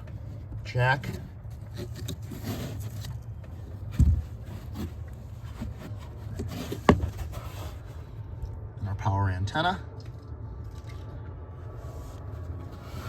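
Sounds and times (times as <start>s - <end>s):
rubbing and handling noises: 0.0s - 8.2s, 11.7s - 13.0s
low steady hum: 0.0s - 13.0s.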